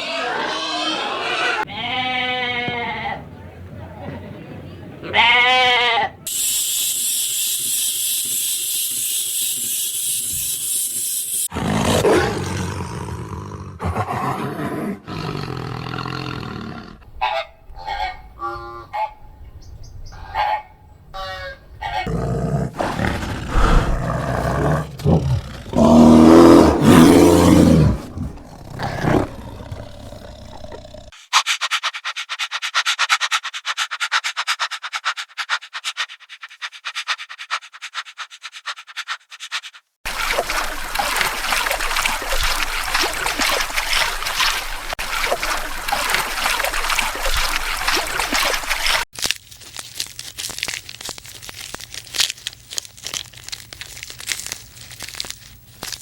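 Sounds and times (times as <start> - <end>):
growling roar: 0.0 - 1.6, 11.5 - 17.0, 22.0 - 31.1
young animals rough calls: 21.8 - 31.1.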